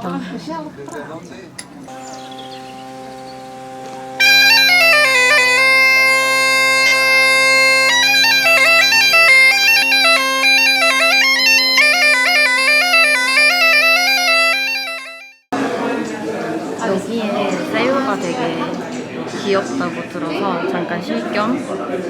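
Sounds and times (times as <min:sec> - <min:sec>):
bagpipe chanter melody: 0:01.9 - 0:15.5
bagpipe drones: 0:01.9 - 0:15.5.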